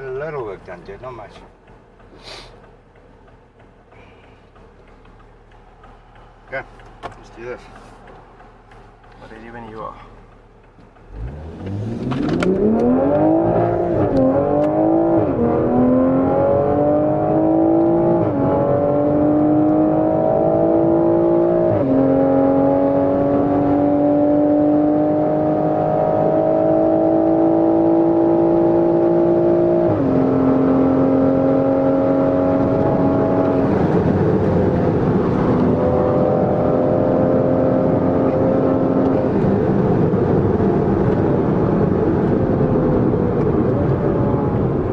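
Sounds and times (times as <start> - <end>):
car engine accelerating hard: 0.0 - 44.9.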